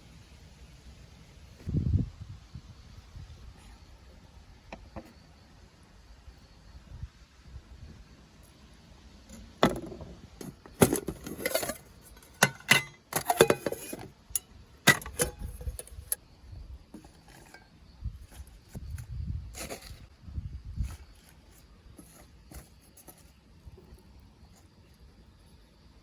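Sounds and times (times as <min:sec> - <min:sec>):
cooking gear clinking and clattering: 0:09.3 - 0:16.2.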